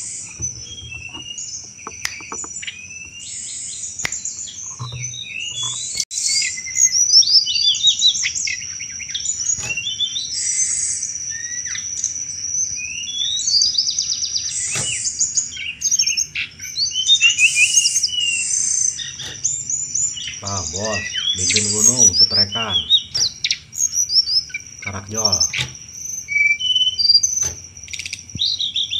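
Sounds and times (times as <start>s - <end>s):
bird chirps and trills: 0.0s - 28.9s
sharp clicks: 0.4s - 2.6s.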